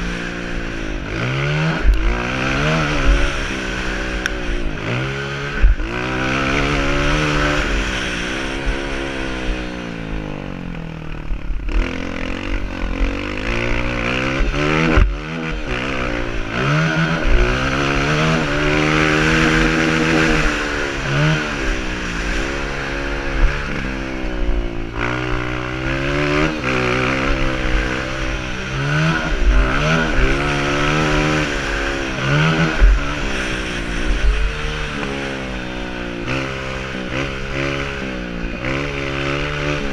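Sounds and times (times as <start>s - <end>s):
dirt bike engine revving: 0.0s - 39.9s
steady rush of noise: 0.0s - 39.9s.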